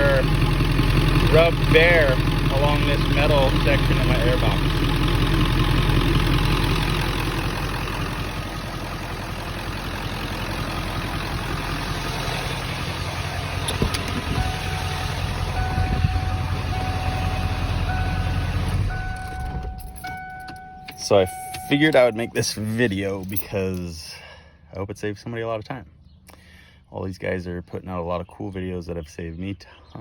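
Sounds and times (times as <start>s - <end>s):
diesel truck engine idling: 0.0s - 24.6s
electronic warning chime: 14.3s - 22.8s.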